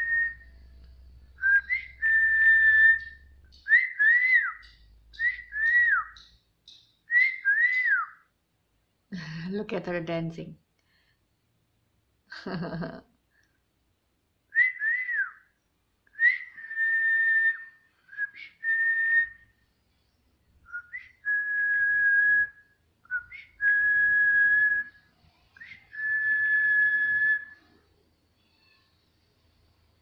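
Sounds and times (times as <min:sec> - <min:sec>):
person whistling: 0:01.4 - 0:06.3, 0:07.1 - 0:08.2, 0:14.6 - 0:15.4, 0:16.2 - 0:19.5, 0:25.6 - 0:27.7.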